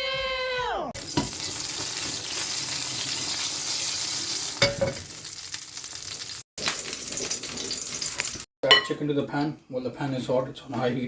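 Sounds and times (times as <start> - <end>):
seeds sizzling in hot oil: 1.0 - 8.5.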